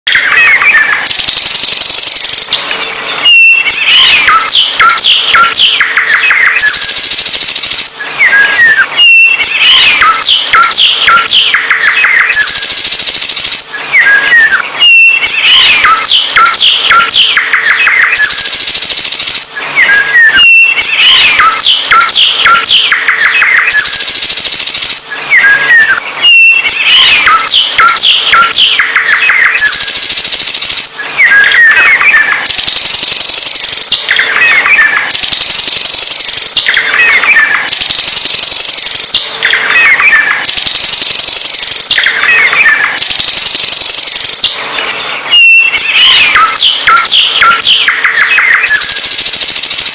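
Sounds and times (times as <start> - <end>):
songbird singing: 0.2 - 7.0, 7.8 - 12.6, 13.6 - 18.7, 19.4 - 24.0, 25.0 - 29.8, 43.7 - 48.9.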